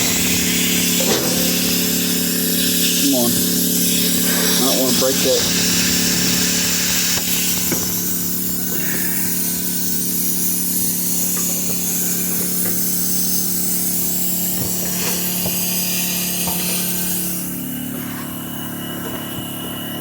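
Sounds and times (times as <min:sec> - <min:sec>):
air hissing through hose: 0:00.0 - 0:19.9
air compressor running: 0:00.0 - 0:20.0.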